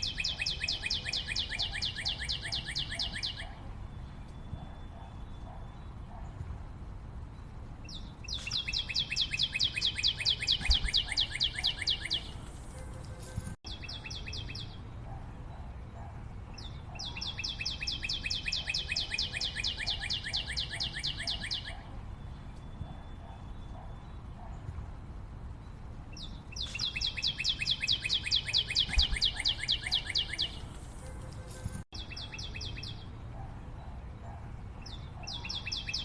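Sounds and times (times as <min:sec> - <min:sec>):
bird singing high sharp notes: 0:00.0 - 0:05.8, 0:07.9 - 0:14.8, 0:16.6 - 0:24.1, 0:26.2 - 0:30.7
lower bird calls: 0:00.0 - 0:06.4, 0:08.3 - 0:12.4, 0:26.2 - 0:30.7.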